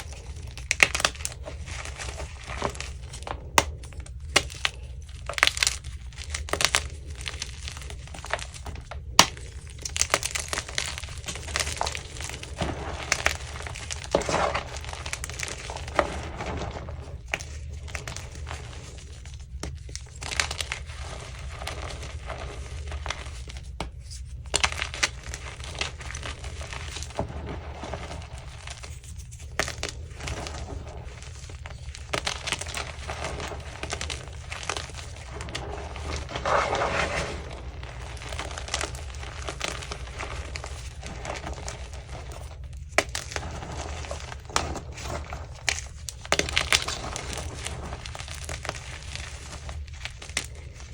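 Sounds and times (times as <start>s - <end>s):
chalk being crushed: 0.0s - 50.9s.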